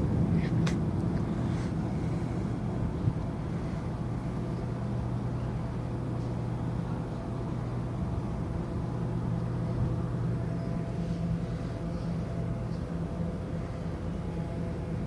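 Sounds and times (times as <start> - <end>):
ship machinery low drone: 0.0 - 15.0.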